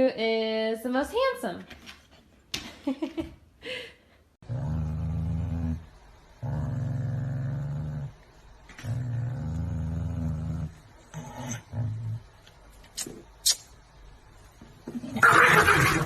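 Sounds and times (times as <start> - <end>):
dog growling: 4.4 - 12.4.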